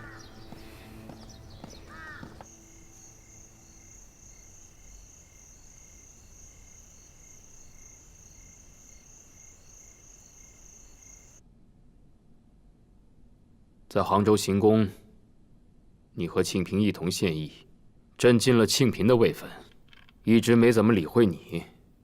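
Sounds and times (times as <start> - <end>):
crow cawing: 0.0 - 0.7, 1.6 - 2.6
crickets trilling: 1.2 - 11.4.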